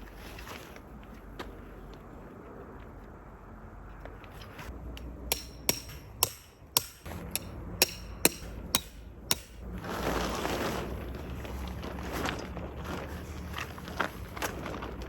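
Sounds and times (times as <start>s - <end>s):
hammer striking metal: 5.2s - 9.6s
crunching rustling noise: 9.6s - 15.0s.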